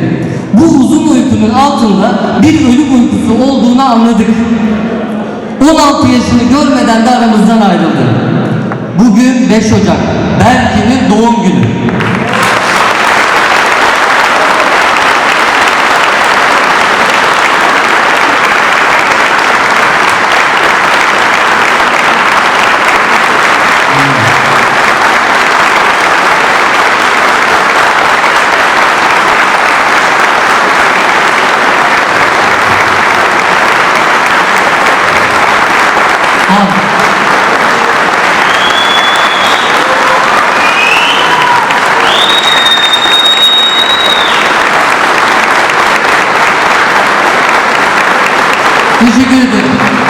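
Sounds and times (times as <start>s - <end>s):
audience applause: 11.9s - 50.0s.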